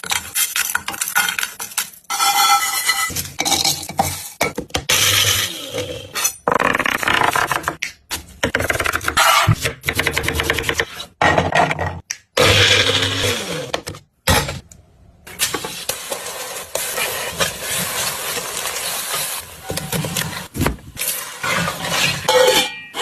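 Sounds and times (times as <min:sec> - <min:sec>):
frying hiss: 0:15.4 - 0:19.6.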